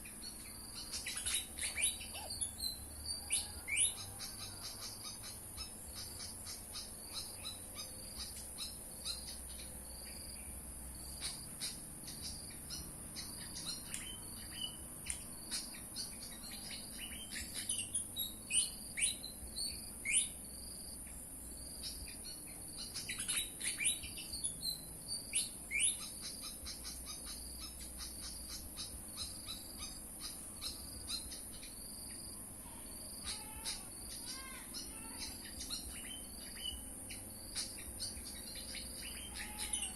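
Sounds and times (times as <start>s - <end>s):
high insect buzz: 0.0s - 39.9s
bird whistled chirps: 0.3s - 9.4s, 15.6s - 20.4s, 22.8s - 31.7s.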